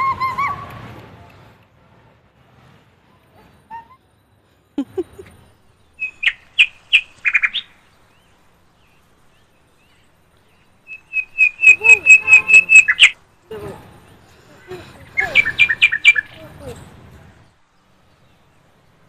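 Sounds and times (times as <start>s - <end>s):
bird chirping: 3.7s - 13.2s, 14.0s - 16.8s.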